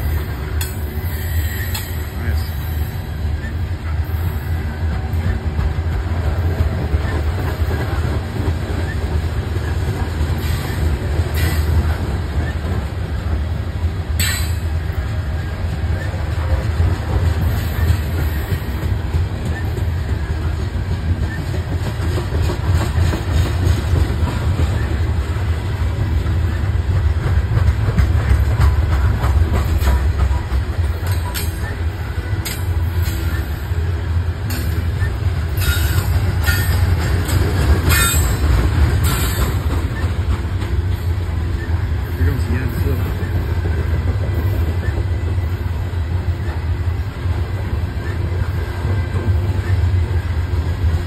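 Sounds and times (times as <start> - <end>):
freight train wheels rumbling: 0.0 - 51.0
squeaks and clicks from wheels: 0.1 - 5.5, 6.9 - 8.0, 15.4 - 16.6, 17.4 - 20.3, 21.1 - 22.2, 27.6 - 33.8, 34.5 - 45.8.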